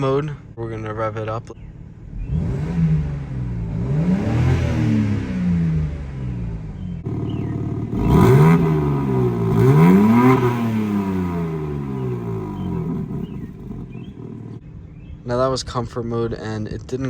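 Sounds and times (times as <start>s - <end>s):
car engine revving: 2.0s - 14.6s.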